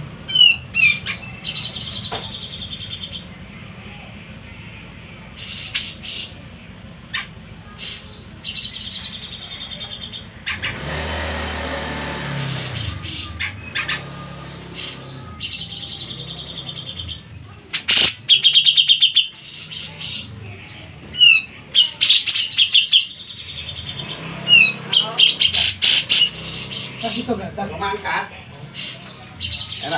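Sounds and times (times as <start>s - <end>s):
bird singing buzzy trills: 0.2s - 11.3s, 12.3s - 28.0s
sharp bird chirps: 12.8s - 20.3s.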